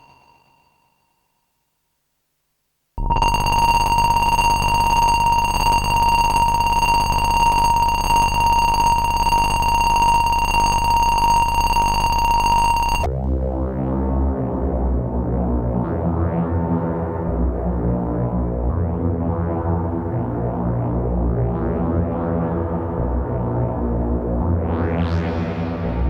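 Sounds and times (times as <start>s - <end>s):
alarm-like synth tone: 0.0s - 0.6s, 3.0s - 13.1s.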